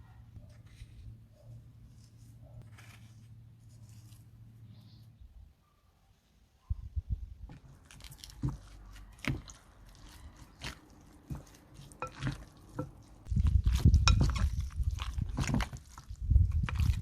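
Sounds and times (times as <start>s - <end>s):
food squelching: 7.5s - 17.0s.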